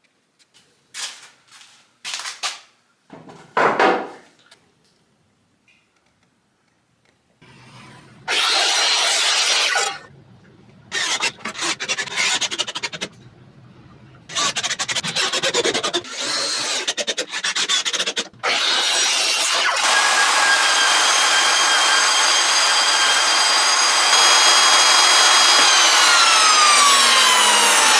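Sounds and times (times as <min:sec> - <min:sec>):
power tool whining: 0:07.4 - 0:27.9
rasping strokes on wood: 0:07.4 - 0:27.9.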